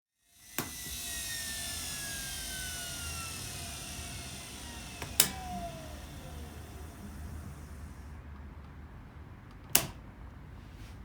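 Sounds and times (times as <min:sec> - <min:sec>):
washing machine motor whining: 0:00.2 - 0:08.2
sharp clicks: 0:00.5 - 0:07.8.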